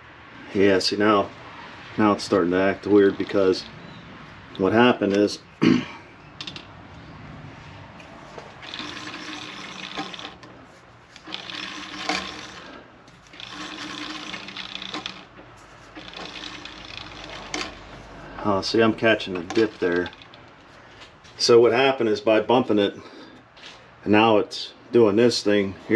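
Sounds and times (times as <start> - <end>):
metal lathe running: 2.6 - 3.9, 8.6 - 18.0, 19.1 - 20.4.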